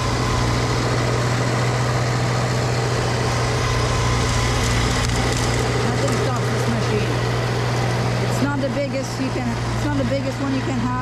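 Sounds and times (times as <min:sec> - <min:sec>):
snowblower engine running: 0:00.0 - 0:11.0.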